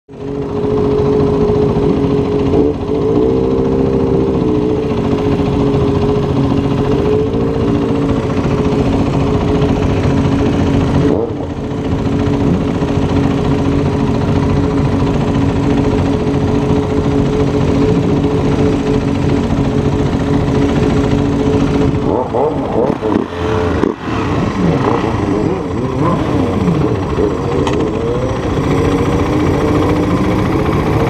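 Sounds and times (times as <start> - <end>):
motorcycle engine running: 0.1 - 31.0.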